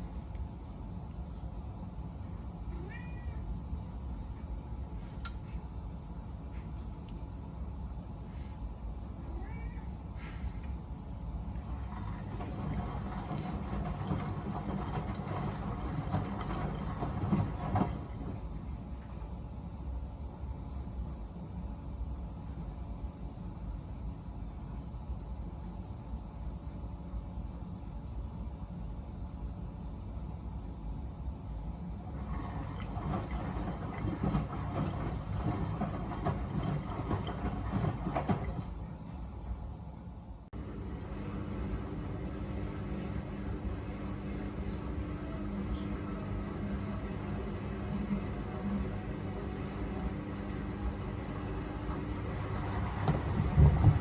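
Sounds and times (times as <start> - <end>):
washing machine rumble: 0.0 - 54.0
laundry sloshing and clatter: 11.5 - 18.5, 32.0 - 39.0, 40.6 - 54.0
wet laundry tumbling and splashing: 32.1 - 38.8, 51.9 - 54.0.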